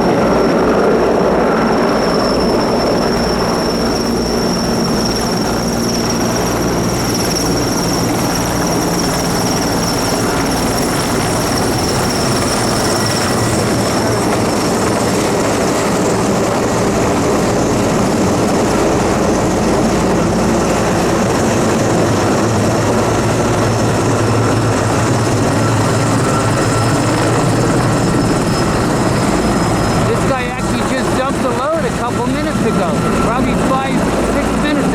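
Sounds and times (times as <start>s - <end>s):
helicopter rotor noise: 0.0s - 34.9s
high engine whine: 18.0s - 34.9s.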